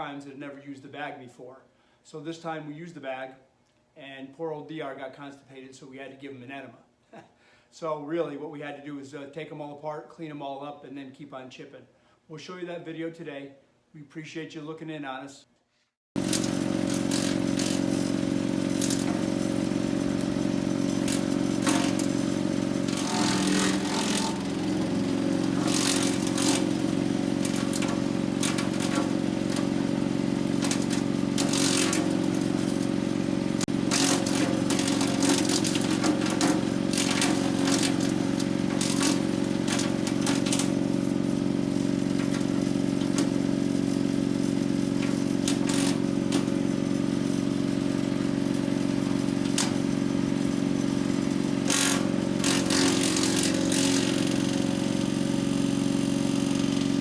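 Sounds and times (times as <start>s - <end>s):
wood chipper engine running: 16.2s - 57.0s
wood cracking and clattering: 25.5s - 26.7s.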